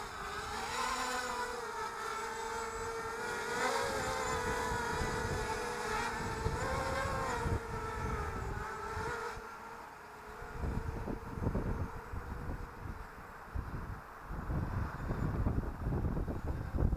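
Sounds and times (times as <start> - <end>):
quadcopter motors whining: 0.0 - 16.9
wind buffeting microphone: 2.6 - 9.4, 10.4 - 16.9.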